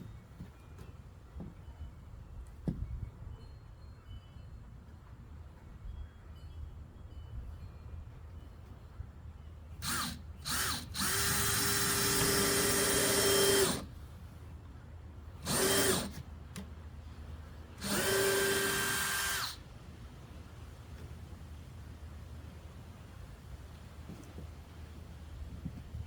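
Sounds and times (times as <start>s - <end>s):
electric drill running: 9.8s - 13.9s, 15.4s - 16.2s, 17.8s - 19.6s.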